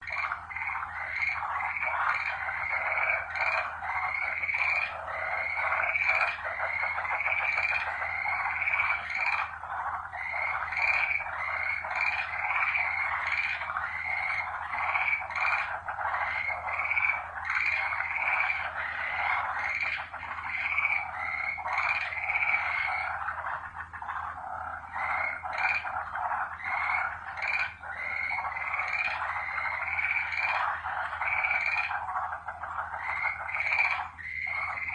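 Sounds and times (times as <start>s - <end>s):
chorus of frogs calling: 0.0s - 34.9s.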